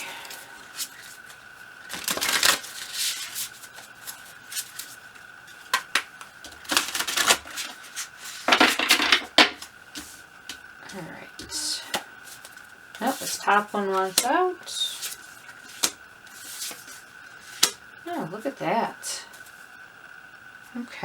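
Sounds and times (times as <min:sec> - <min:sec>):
cards shuffled by hand: 0:00.6 - 0:10.6, 0:11.9 - 0:17.8.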